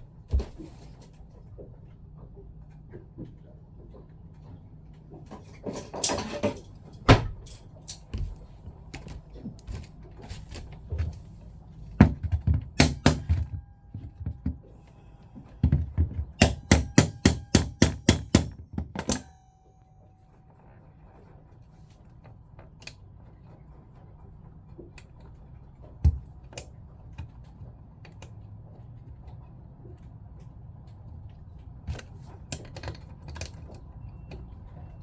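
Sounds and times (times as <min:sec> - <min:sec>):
hammer knocking on pump part: 0:12.0 - 0:14.7, 0:15.6 - 0:19.2.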